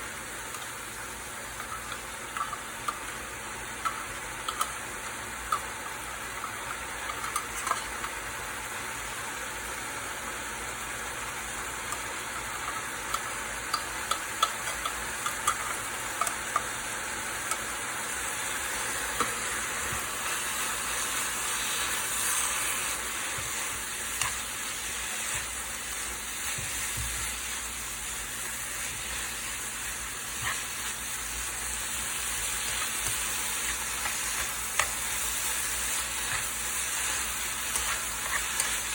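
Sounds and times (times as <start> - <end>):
food sizzling in a frying pan: 0.0 - 38.9
utensil clicking against pan: 1.5 - 3.2, 3.8 - 4.8, 5.4 - 8.2, 11.9 - 16.8, 17.4 - 17.7, 23.3 - 27.4, 32.4 - 38.9.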